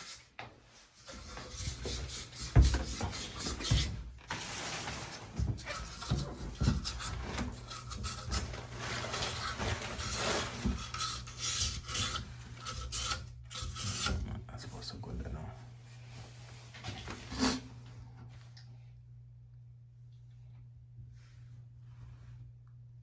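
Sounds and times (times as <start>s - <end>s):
sandpaper scraping metal: 6.8s - 14.1s.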